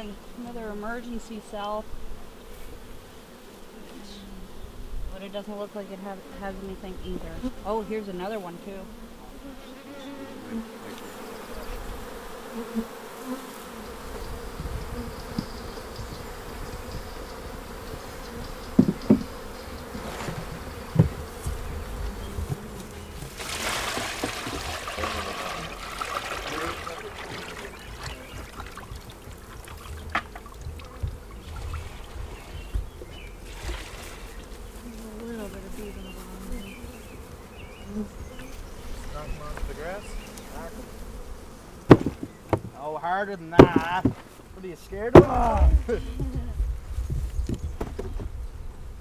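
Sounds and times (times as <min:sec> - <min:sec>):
bees buzzing: 0:00.0 - 0:49.0
sharp knocks: 0:41.9 - 0:42.8, 0:43.6 - 0:44.3.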